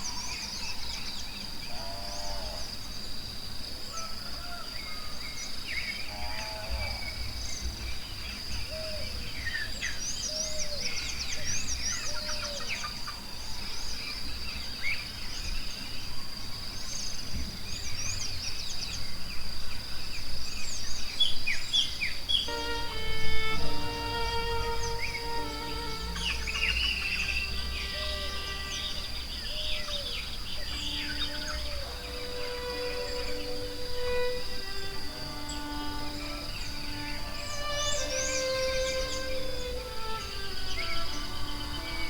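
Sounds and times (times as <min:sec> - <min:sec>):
high-pitched insect drone: 0:22.4 - 0:42.0
birds chirping and calling: 0:22.6 - 0:42.0.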